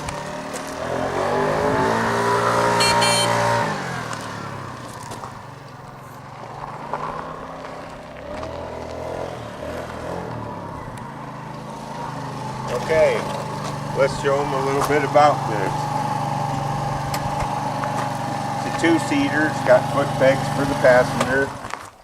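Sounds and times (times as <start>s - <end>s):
scooter engine revving: 0.0s - 21.9s
short high horn beep: 2.8s - 3.6s.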